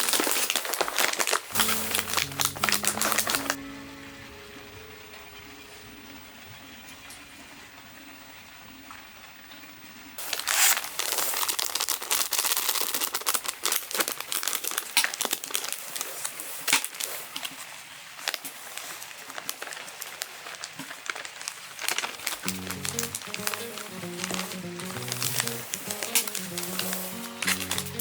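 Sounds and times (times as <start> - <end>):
crinkling and crackling: 0.0 - 3.6, 10.2 - 28.0
faint steady hiss: 1.6 - 11.4, 22.3 - 28.0.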